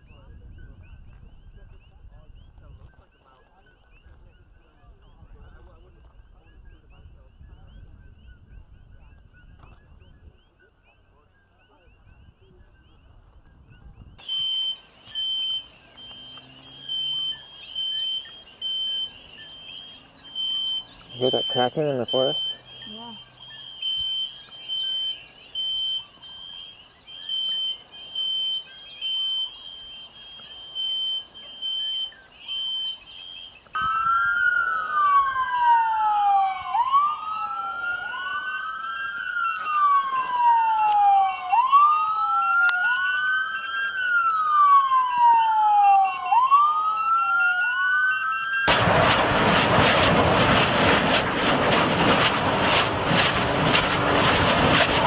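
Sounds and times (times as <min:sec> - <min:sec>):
high beeping: 0:14.2 - 0:33.5
siren wailing: 0:14.2 - 0:55.0
loud rushing noise: 0:48.7 - 0:55.0.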